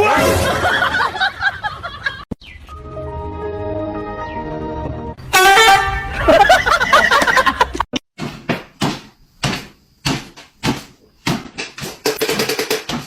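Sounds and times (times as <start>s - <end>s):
sharp knocks: 8.2s - 13.0s.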